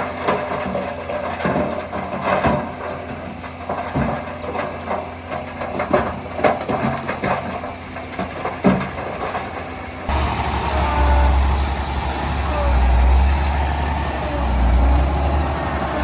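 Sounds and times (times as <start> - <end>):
bulldozer diesel engine running: 0.0 - 16.0
loud steady engine drone: 9.1 - 16.0.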